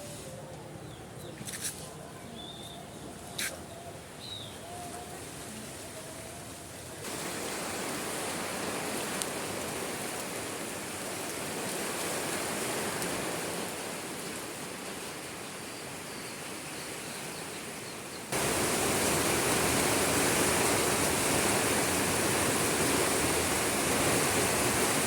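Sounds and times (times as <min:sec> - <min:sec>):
heavy rain pouring: 0:06.4 - 0:16.7, 0:18.3 - 0:25.0.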